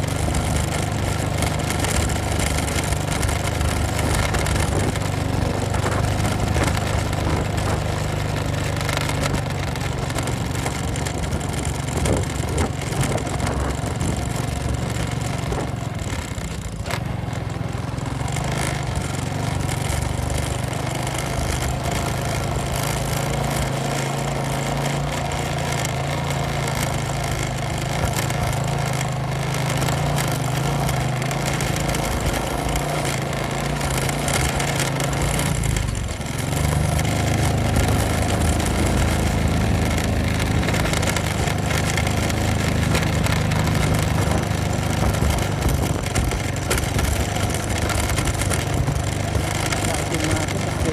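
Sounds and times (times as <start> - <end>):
motorcycle engine running: 0.0 - 50.9
rushing wind noise: 2.5 - 8.3, 9.2 - 16.2, 33.8 - 49.6.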